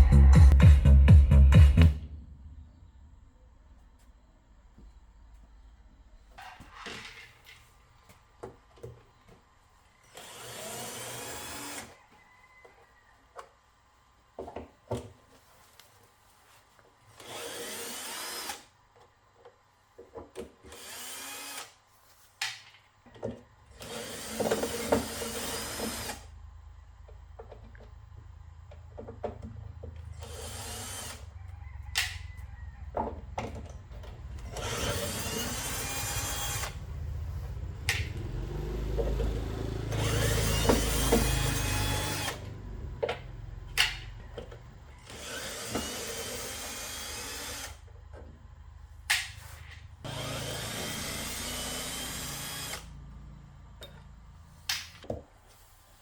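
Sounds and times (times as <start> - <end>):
power drill running: 10.1 - 12.0, 17.2 - 18.7, 20.7 - 21.8, 23.7 - 26.3, 30.1 - 31.3, 34.3 - 42.8, 45.0 - 47.9, 50.0 - 53.3.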